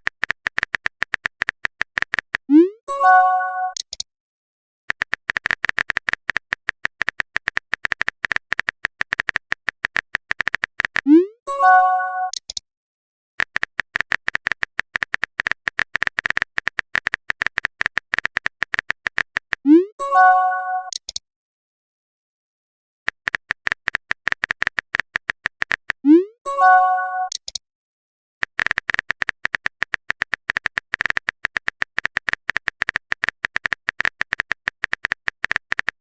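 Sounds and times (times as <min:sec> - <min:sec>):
typing taps: 0:00.0 - 0:02.5, 0:03.7 - 0:04.0, 0:04.9 - 0:11.1, 0:13.4 - 0:19.6, 0:23.1 - 0:26.0, 0:28.4 - 0:36.0.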